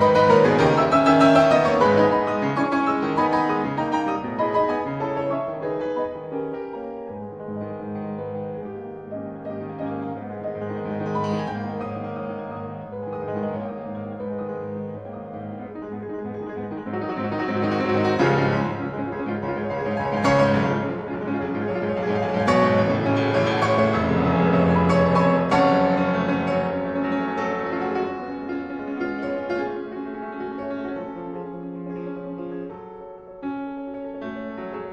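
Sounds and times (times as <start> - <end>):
gentle piano music: 0.0 - 34.9.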